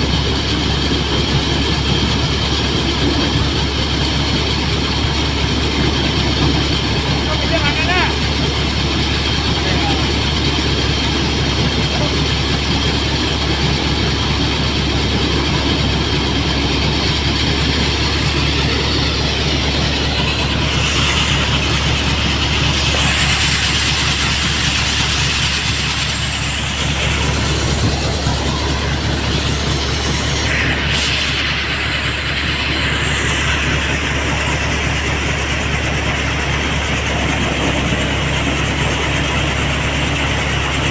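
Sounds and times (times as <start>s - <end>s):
engine drone under load: 0.0s - 40.9s
thresher mechanical rattle: 0.0s - 40.9s
loud hiss: 15.6s - 40.9s.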